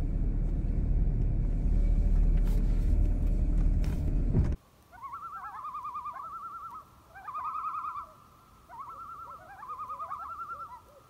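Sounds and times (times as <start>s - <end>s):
loons tremolo calls: 4.9s - 11.0s.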